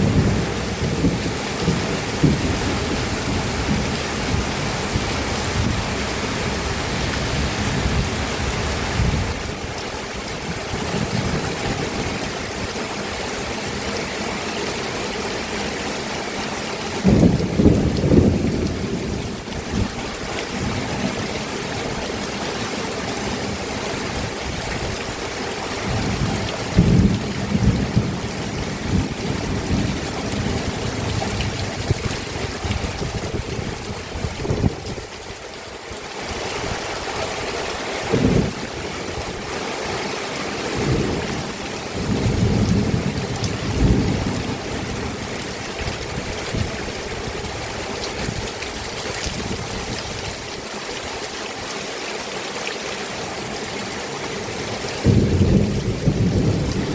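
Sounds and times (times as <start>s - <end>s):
low thunder rumbles: 0.0s - 9.7s, 17.0s - 21.3s, 25.8s - 35.1s, 38.1s - 39.4s, 40.7s - 48.5s, 55.0s - 56.9s
steady rain falling: 0.0s - 56.9s.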